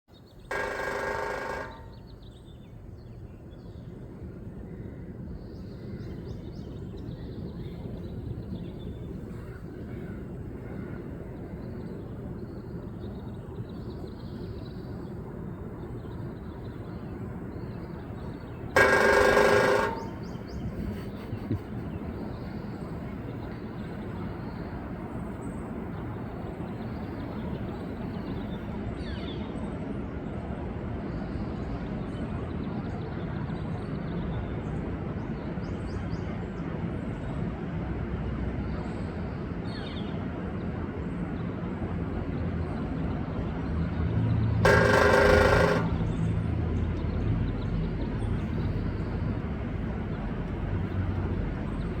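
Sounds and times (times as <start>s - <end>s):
woodpecker drumming on metal: 0.4s - 2.2s, 9.2s - 25.4s, 44.6s - 52.0s.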